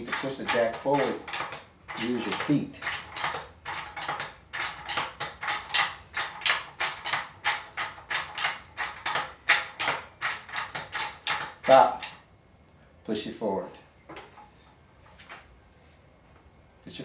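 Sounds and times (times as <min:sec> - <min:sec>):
jack handle metallic clacks: 0:00.0 - 0:12.2.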